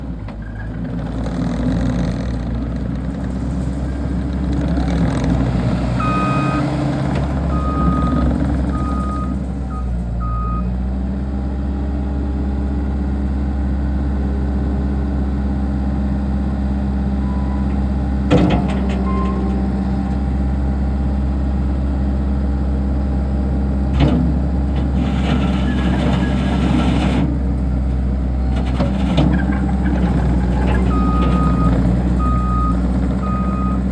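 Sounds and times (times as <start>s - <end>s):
diesel engine running: 0.0s - 33.9s
reversing alarm beeping: 6.0s - 6.8s, 7.5s - 10.7s, 17.2s - 17.7s, 30.8s - 33.9s.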